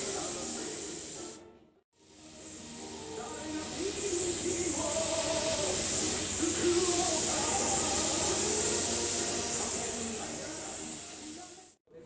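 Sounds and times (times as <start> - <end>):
paint spray gun hissing: 0.0 - 1.4, 2.0 - 11.8
faint voice or radio music: 2.5 - 12.0.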